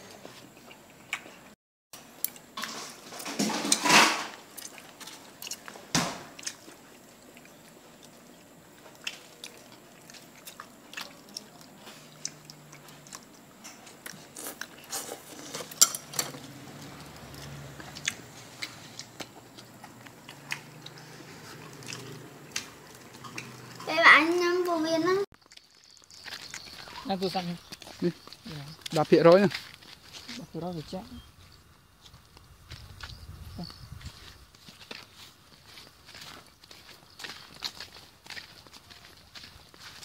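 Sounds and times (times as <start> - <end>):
rustle: 2.0 - 25.1
person chewing and biting food: 4.4 - 23.8, 25.4 - 30.3, 31.4 - 40.0.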